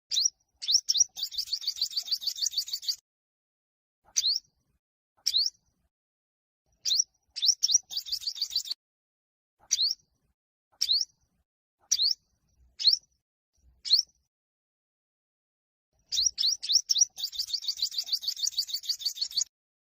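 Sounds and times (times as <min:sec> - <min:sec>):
sunbird high rising chirps: 0:00.1 - 0:03.0, 0:04.2 - 0:04.4, 0:05.3 - 0:05.5, 0:06.8 - 0:08.8, 0:09.7 - 0:10.0, 0:10.8 - 0:11.1, 0:11.9 - 0:12.2, 0:12.8 - 0:13.1, 0:13.8 - 0:14.2, 0:16.0 - 0:19.5
sunbird fast trill: 0:16.1 - 0:19.5.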